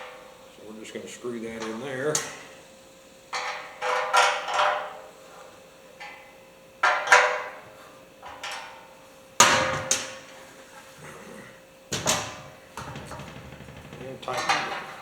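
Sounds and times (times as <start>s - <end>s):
metal clanks on hollow tank: 12.0s - 15.0s.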